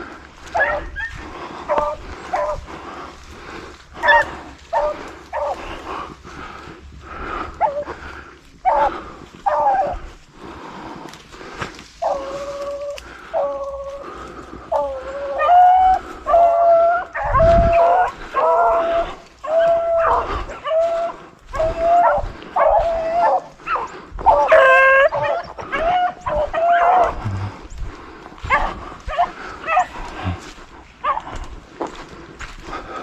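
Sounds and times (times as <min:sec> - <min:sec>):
hounds baying: 0:00.0 - 0:33.0.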